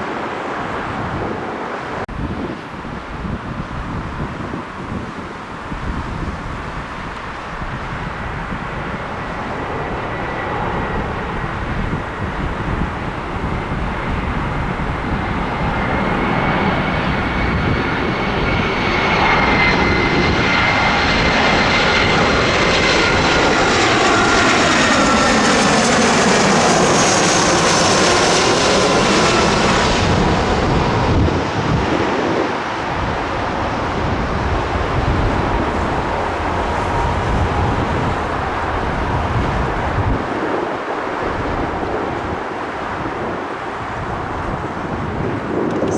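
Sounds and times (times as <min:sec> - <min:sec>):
airliner engines passing by: 0:00.0 - 0:45.9.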